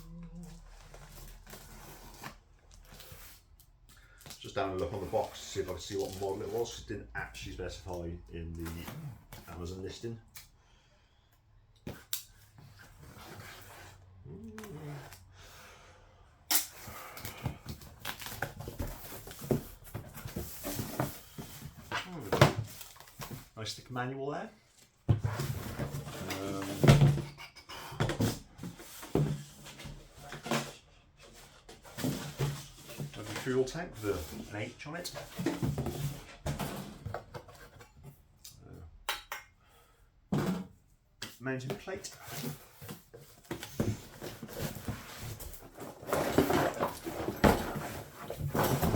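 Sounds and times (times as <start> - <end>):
packaging rustling and crinkling: 0.1 - 6.8, 17.2 - 23.6, 42.2 - 48.9.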